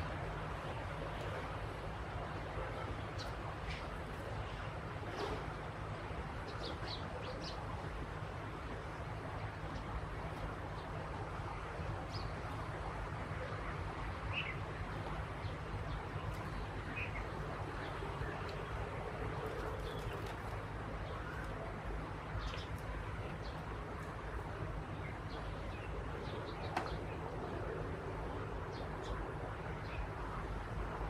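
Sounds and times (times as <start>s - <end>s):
outdoor background noise: 0.0s - 31.0s
small birds chirping: 22.4s - 24.1s.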